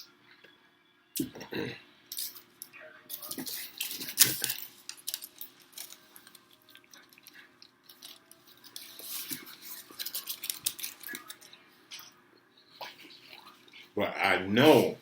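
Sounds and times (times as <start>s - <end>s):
food crinkles and clicks: 2.1s - 14.0s.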